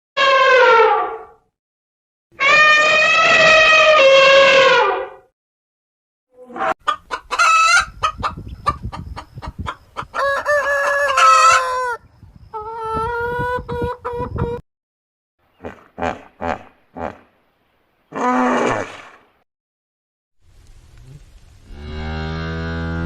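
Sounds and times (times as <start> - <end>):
long loud animal call: 2.4 - 5.0
chickens clucking: 6.6 - 14.6
rooster crowing: 10.1 - 12.0.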